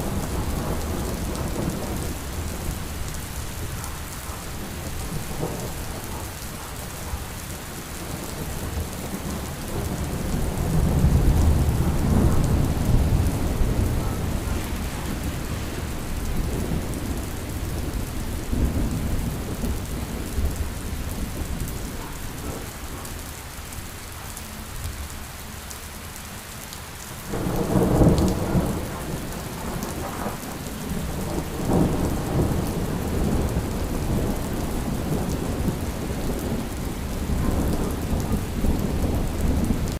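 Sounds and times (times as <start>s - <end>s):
steady rain: 0.0s - 39.9s
rolling thunder: 7.9s - 22.8s, 27.3s - 39.9s.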